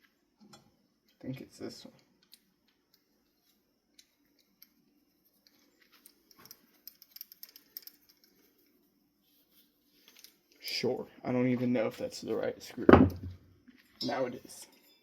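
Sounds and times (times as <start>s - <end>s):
small parts clicking and tapping: 1.9s - 8.8s, 10.0s - 10.8s.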